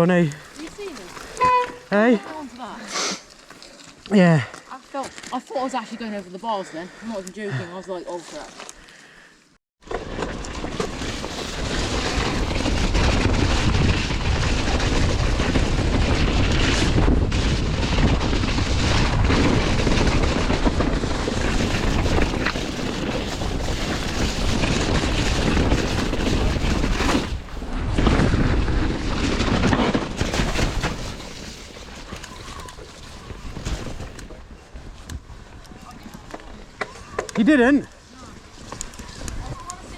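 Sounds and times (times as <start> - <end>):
bike rattling over rough ground: 0.0 - 6.4, 9.8 - 39.9
wind rushing on microphone: 11.2 - 30.9.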